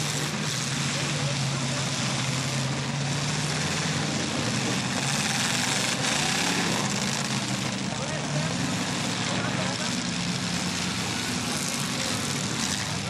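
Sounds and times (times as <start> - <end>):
many car engines droning: 0.0 - 13.0.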